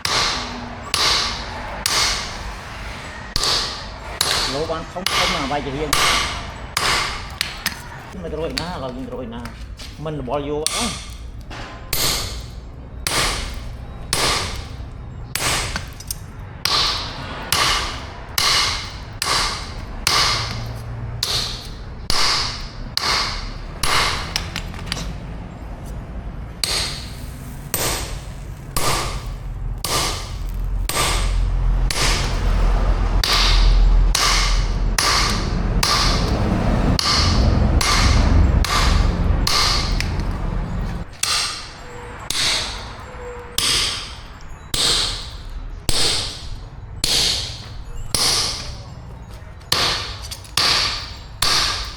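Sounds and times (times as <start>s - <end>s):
hammer blows on steel: 0.0s - 7.9s, 26.6s - 51.9s
low rumble: 11.1s - 51.9s.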